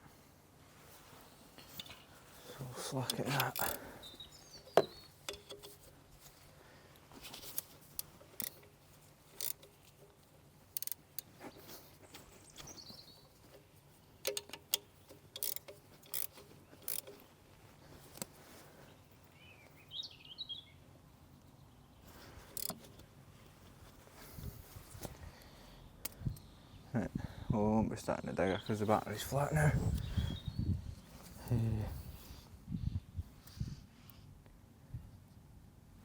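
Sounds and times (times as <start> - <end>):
metallic clicks of hand tools: 3.1 - 3.9, 4.8 - 5.8, 7.4 - 8.7, 9.4 - 11.3, 14.2 - 17.2, 22.5 - 23.0
bird chirping: 3.4 - 5.6, 11.4 - 13.5, 19.3 - 22.1, 28.0 - 30.8.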